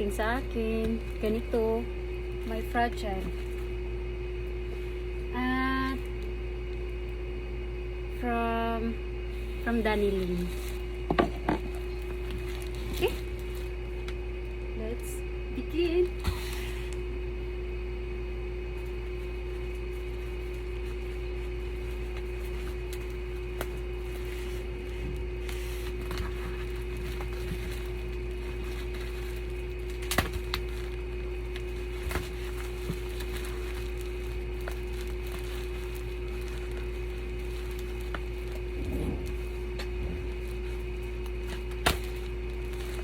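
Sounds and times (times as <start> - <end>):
steady electrical hum: 0.0 - 43.0
parcel packaging knocks and clicks: 28.5 - 38.3.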